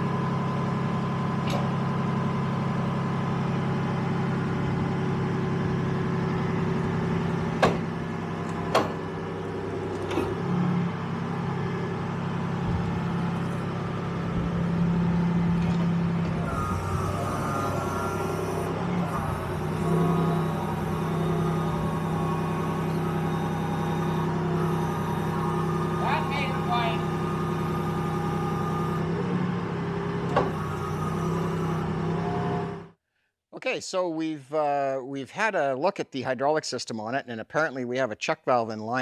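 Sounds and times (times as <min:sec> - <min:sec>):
vehicle engine running: 0:00.0 - 0:33.0
sharp knocks: 0:07.5 - 0:09.2.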